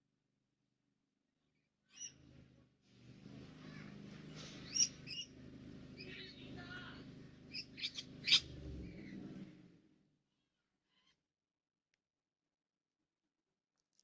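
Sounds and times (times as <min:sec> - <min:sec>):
birds chirping: 0:01.9 - 0:09.8
steady low hum: 0:02.1 - 0:10.0.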